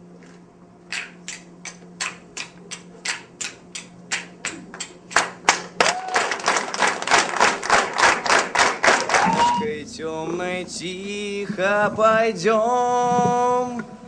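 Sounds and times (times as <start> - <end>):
hands clapping in rhythm: 0.9 - 9.6
low hum: 9.1 - 14.0.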